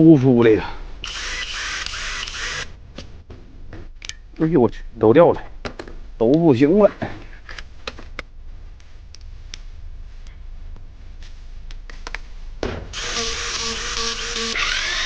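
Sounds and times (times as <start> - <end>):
electric power tool motor running: 1.0 - 2.6, 13.0 - 15.0.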